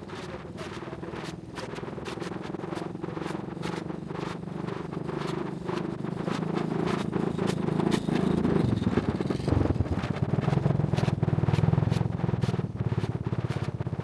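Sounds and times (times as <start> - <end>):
vehicle engine running: 3.0 - 14.0.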